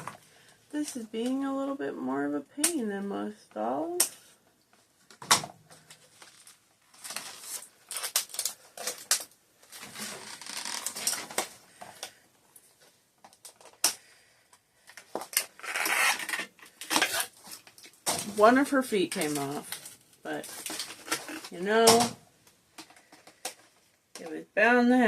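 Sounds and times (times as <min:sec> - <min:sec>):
plastic and cardboard rustling: 0:04.1 - 0:22.1
packaging clicks and snaps: 0:07.9 - 0:09.4.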